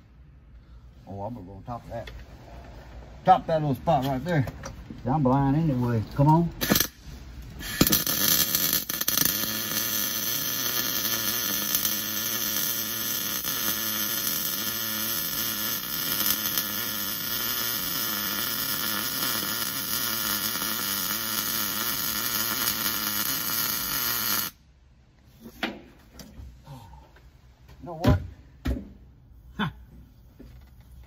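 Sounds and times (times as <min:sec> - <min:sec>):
welder crackling hiss: 0:07.6 - 0:24.6.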